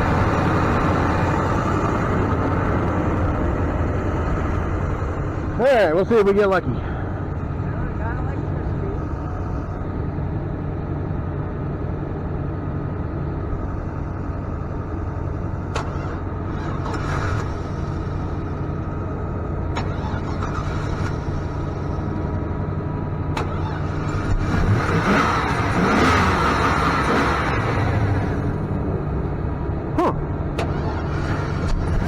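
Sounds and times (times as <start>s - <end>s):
engine running: 0.0s - 32.0s
rough engine surge: 13.6s - 32.0s.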